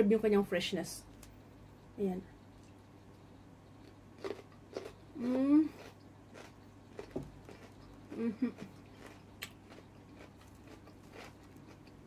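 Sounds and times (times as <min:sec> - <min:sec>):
person chewing: 0:02.6 - 0:12.0
person humming: 0:05.2 - 0:05.8, 0:08.1 - 0:08.7.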